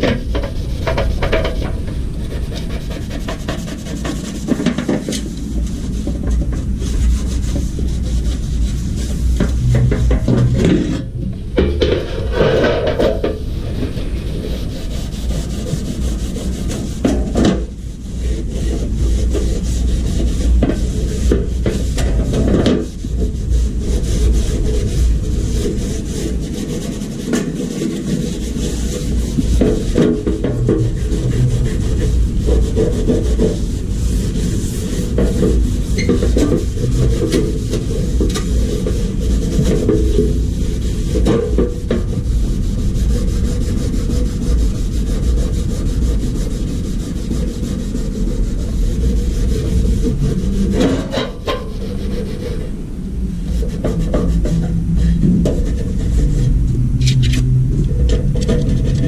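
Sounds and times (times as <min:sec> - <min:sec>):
scattered knocks: 0:00.0 - 0:08.4, 0:09.0 - 0:17.8, 0:25.6 - 0:42.4
rough scraping: 0:00.0 - 0:59.0.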